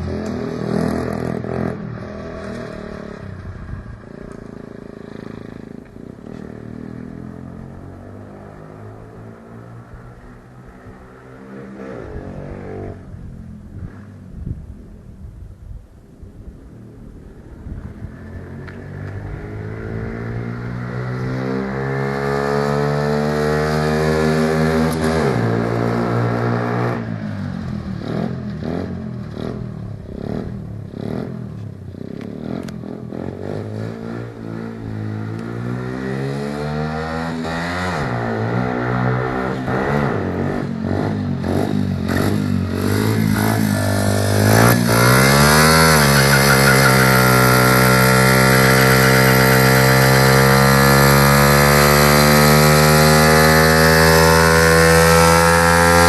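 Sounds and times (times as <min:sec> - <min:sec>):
small motorcycle engine revving: 0:18.3 - 0:56.0.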